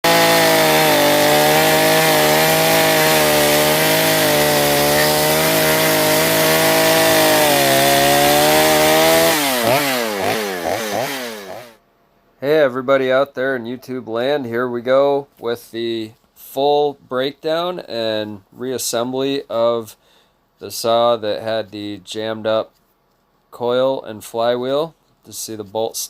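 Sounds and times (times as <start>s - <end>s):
chainsaw running: 0.0s - 11.8s.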